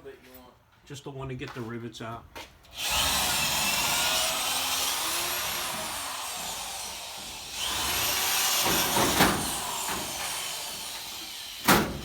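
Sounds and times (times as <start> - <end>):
electric drill boring into metal: 2.7 - 12.0.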